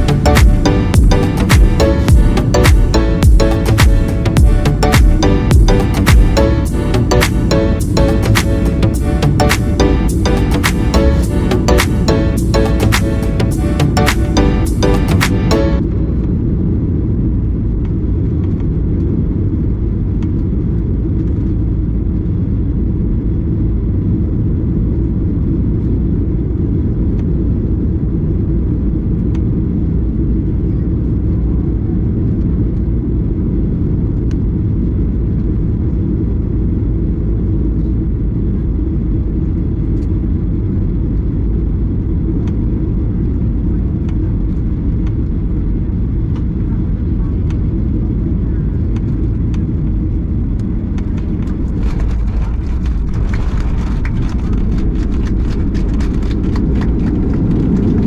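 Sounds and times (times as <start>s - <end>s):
airliner cabin engine rumble: 15.9s - 58.0s.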